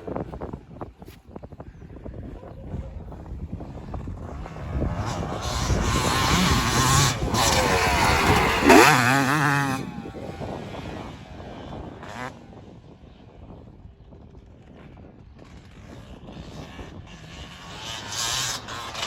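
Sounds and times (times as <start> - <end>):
motocross bike engine revving: 4.2 - 12.4, 16.4 - 19.0.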